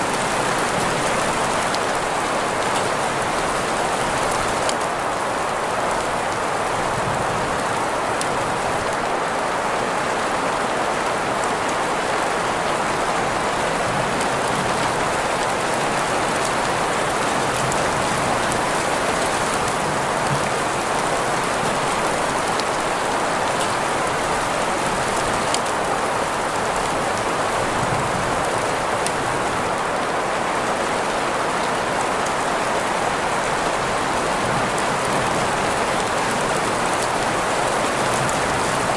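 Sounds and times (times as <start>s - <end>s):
steady rain hiss: 0.0s - 38.9s
scattered ticks of raindrops: 0.1s - 6.8s, 7.6s - 9.1s, 13.5s - 30.0s.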